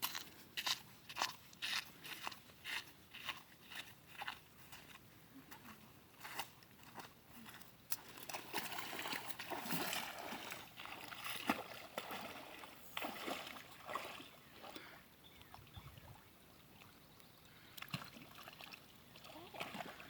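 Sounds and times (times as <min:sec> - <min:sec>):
water splashing and trickling: 0:06.2 - 0:20.0.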